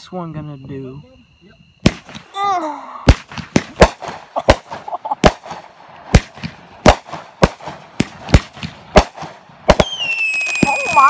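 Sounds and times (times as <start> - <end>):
firework bangs: 1.8 - 2.4, 3.0 - 11.0
faint firework pops and crackle: 3.1 - 11.0.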